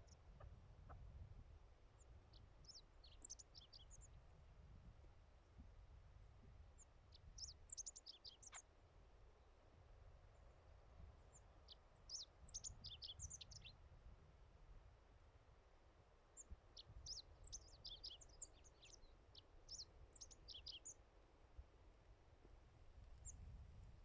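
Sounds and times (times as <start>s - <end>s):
small bird twittering: 7.4s - 8.6s, 19.7s - 21.0s.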